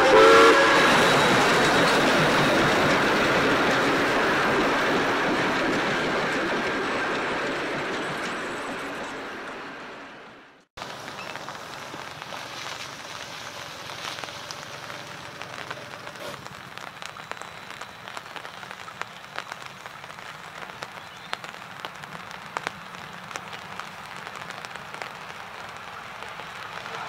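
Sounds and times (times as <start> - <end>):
rain falling: 0.0 - 8.8, 10.8 - 27.0
raindrops ticking close by: 10.8 - 27.0.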